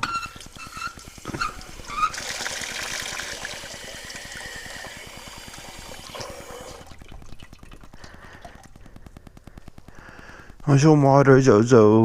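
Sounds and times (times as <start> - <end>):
water pouring into bowl: 0.1 - 8.9.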